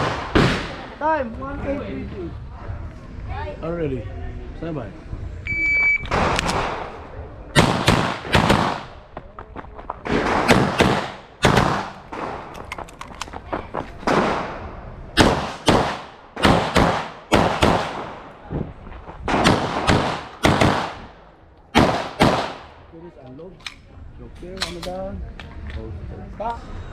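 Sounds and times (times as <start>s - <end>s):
pistol shots with echo: 7.6s - 8.9s, 10.1s - 12.5s, 14.1s - 18.3s, 19.3s - 22.8s.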